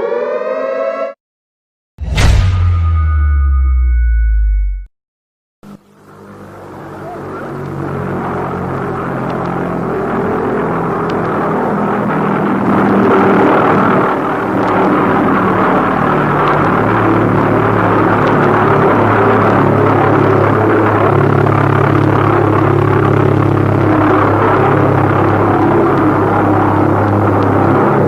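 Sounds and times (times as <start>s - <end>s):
loud low rumble: 2.0s - 4.9s
low droning notes: 2.0s - 4.9s.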